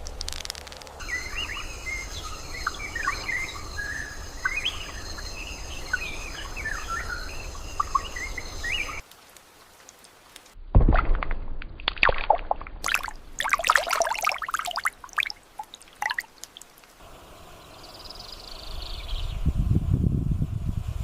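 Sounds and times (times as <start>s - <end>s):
insects trilling: 0.3s - 9.0s, 13.7s - 19.3s
birds chirping and calling: 1.0s - 9.0s.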